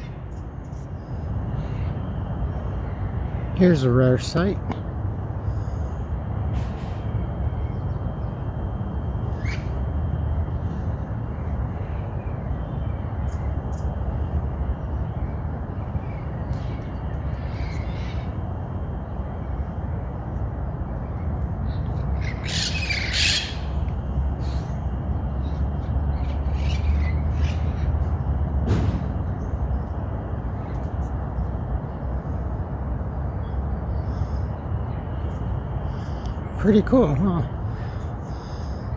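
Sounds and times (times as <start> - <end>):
parrots squawking: 22.2 - 23.8.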